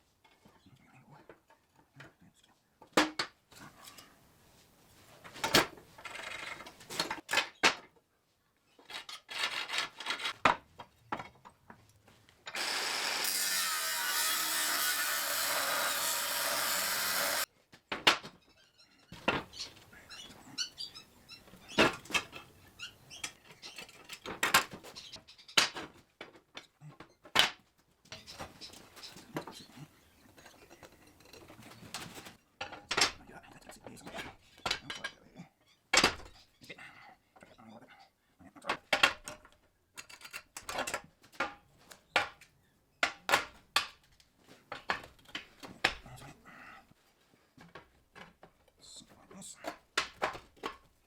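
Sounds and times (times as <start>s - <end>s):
power tool running: 12.5s - 17.4s.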